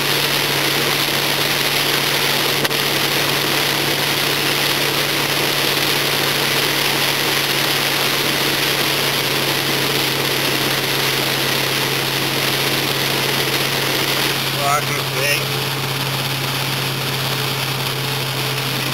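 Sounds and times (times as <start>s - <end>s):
car engine running: 0.0s - 18.9s
constant hiss: 13.8s - 15.6s.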